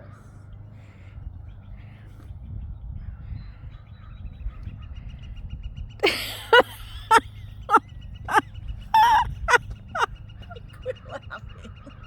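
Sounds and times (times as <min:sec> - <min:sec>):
wind rumbling on microphone: 0:00.5 - 0:06.0
woman laughing: 0:06.0 - 0:08.4, 0:09.0 - 0:12.0.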